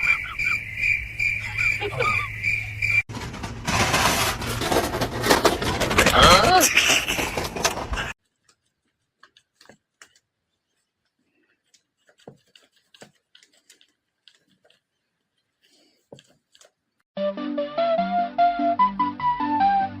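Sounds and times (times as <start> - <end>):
faint clicks and light taps: 8.3 - 14.9
music: 17.2 - 20.0.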